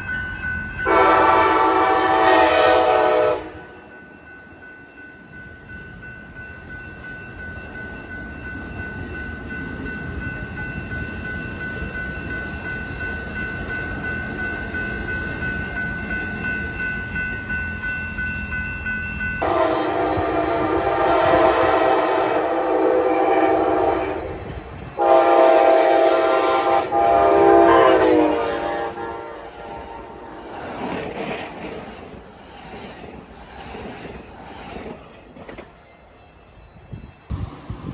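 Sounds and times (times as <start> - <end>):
multi-note train horn blasts: 0.8 - 3.9, 19.4 - 24.4, 25.0 - 30.4
steady high tone: 3.5 - 25.4
train rumble: 5.6 - 37.9.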